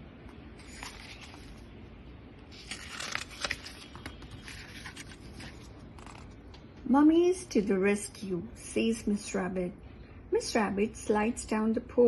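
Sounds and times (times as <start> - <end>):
paper page rustling and turning: 0.5 - 1.8, 2.5 - 6.4.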